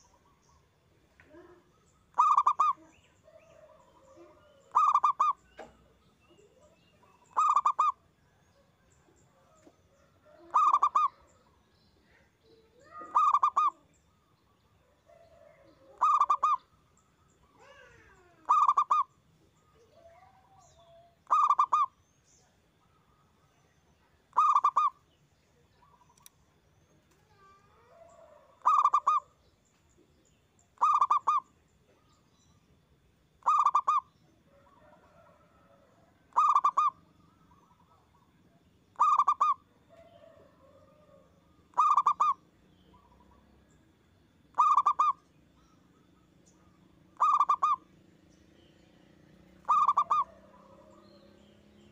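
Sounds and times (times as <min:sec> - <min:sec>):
faint gliding bird calls: 0:00.0 - 0:32.8, 0:33.4 - 0:51.9
dove cooing: 0:01.3 - 0:08.0, 0:10.2 - 0:11.5, 0:12.7 - 0:13.8, 0:15.1 - 0:16.7, 0:17.5 - 0:19.1, 0:21.2 - 0:21.9, 0:24.3 - 0:24.9, 0:27.9 - 0:29.3, 0:30.8 - 0:31.4, 0:33.4 - 0:38.1, 0:39.0 - 0:43.2, 0:44.5 - 0:45.2, 0:47.1 - 0:47.9, 0:49.5 - 0:51.9.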